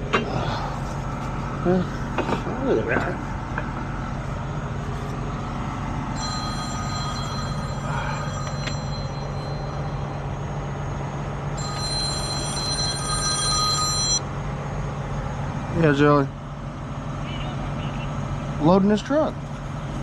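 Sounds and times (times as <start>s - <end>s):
truck engine running: 0.0s - 20.0s
phone ringing: 5.9s - 14.3s.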